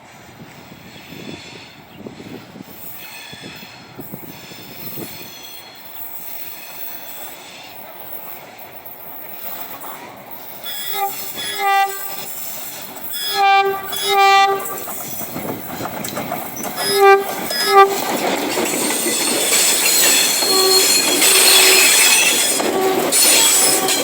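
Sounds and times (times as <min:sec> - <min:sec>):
freight train rolling past: 0:00.0 - 0:24.0
wheel squeal: 0:10.6 - 0:24.0
locomotive horn blasts: 0:10.7 - 0:12.3, 0:13.2 - 0:14.9, 0:16.8 - 0:18.1, 0:20.3 - 0:24.0.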